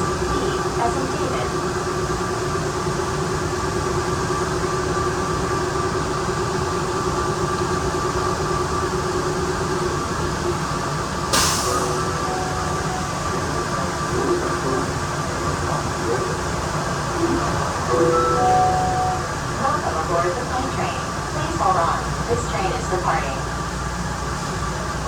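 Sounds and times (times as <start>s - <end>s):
train running rumble: 0.0s - 25.0s
short sharp hiss: 11.4s - 12.1s.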